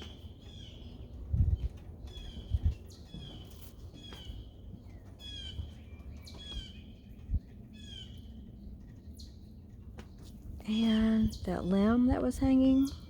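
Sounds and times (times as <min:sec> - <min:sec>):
birds squawking: 0:02.1 - 0:08.4.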